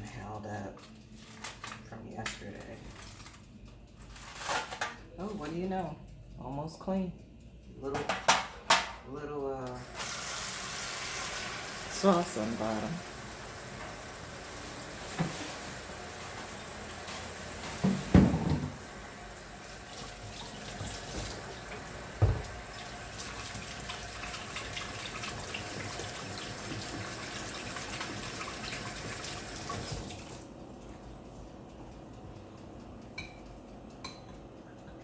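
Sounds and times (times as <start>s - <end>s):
tap running into a sink: 15.1s - 15.5s, 17.6s - 18.8s, 19.9s - 30.4s
small pan knocking on sink: 22.2s - 22.6s.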